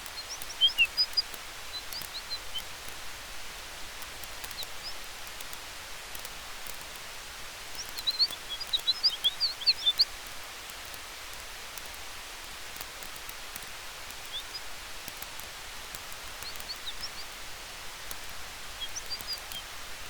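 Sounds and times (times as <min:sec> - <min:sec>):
bird chirping: 0:00.0 - 0:02.7, 0:04.4 - 0:05.1, 0:07.7 - 0:10.2, 0:14.1 - 0:15.2, 0:16.2 - 0:17.4, 0:18.0 - 0:19.7
campfire hiss and crackles: 0:00.0 - 0:20.0
forest wind: 0:00.0 - 0:20.0.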